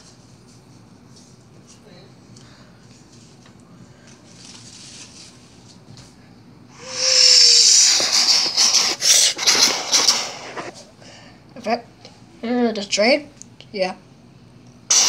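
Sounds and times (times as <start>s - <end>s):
loud hissing rush: 6.8s - 10.8s.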